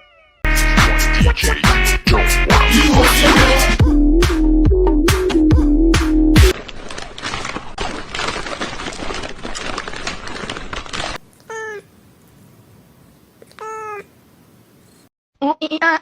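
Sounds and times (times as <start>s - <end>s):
cat meowing: 11.4s - 11.9s, 13.4s - 14.1s.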